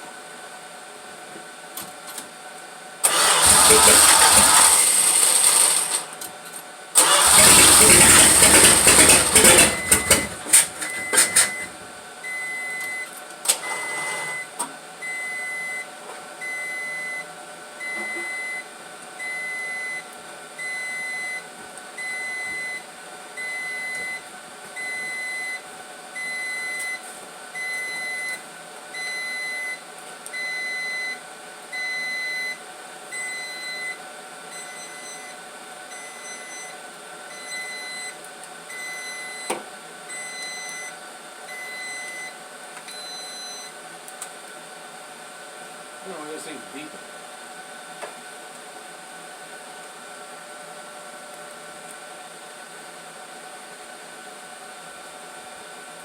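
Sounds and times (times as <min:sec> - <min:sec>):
starter cranking engine: 0:03.0 - 0:06.2, 0:07.0 - 0:11.6.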